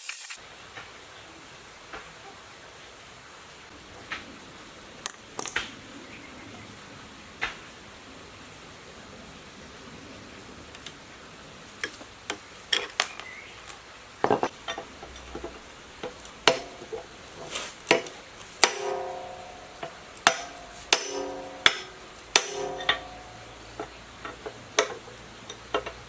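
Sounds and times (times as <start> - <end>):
metal tools clinking: 12.7 - 26.0.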